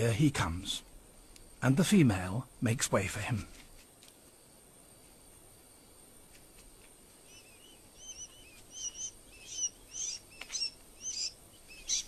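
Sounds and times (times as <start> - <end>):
sandgrouse high chirps: 7.2 - 12.0.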